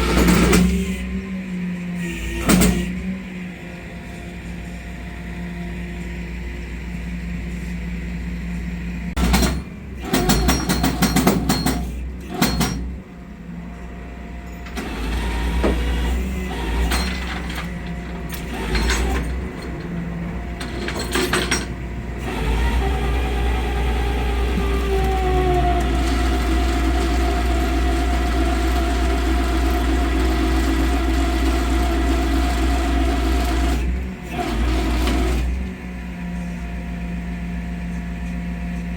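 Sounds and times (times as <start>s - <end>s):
metallic clanking and rattling: 0.0s - 0.9s, 16.8s - 21.8s
truck engine running: 3.0s - 37.8s.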